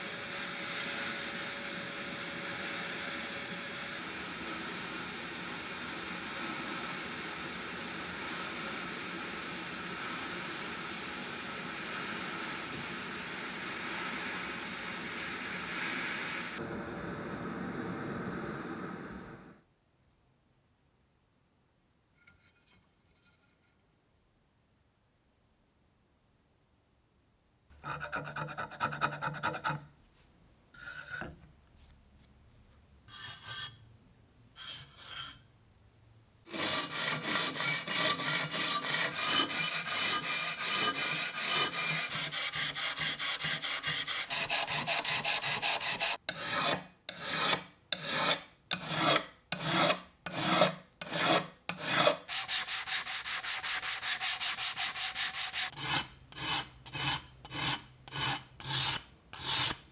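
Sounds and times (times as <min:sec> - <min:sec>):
hand sanding strokes: 0:36.5 - 0:46.7, 0:48.1 - 0:59.8.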